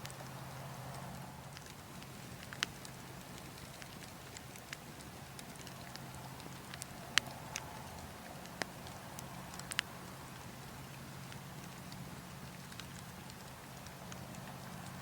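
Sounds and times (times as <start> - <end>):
low background hum: 0.0 - 15.0
wood fire crackling: 0.0 - 15.0.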